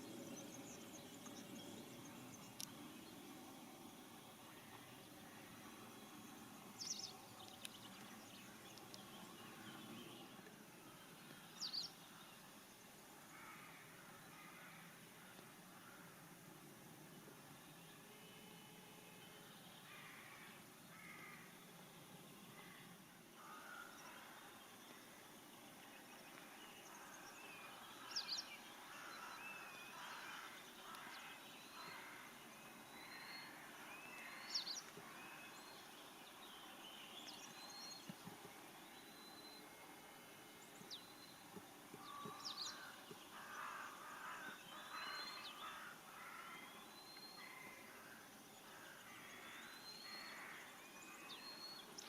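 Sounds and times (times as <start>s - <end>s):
distant birds calling: 40.6s - 50.8s.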